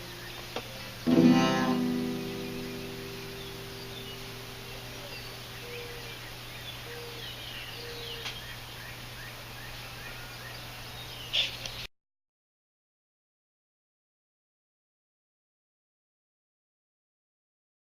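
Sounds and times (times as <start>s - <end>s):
small birds chirping: 0.0s - 11.9s
guitar and strings chord: 1.0s - 5.5s.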